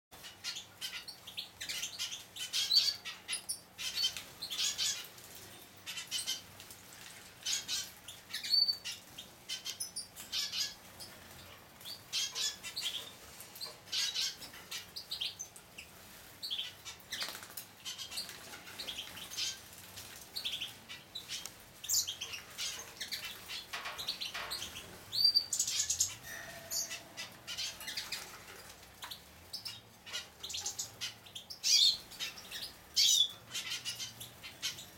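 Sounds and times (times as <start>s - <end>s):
wings fluttering and splashing: 3.8s - 31.1s
high bird chirps: 20.4s - 28.4s.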